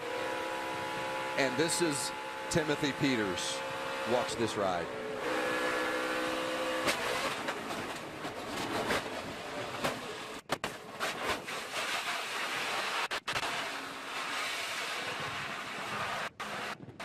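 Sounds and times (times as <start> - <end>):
truck engine running: 0.0 - 10.5.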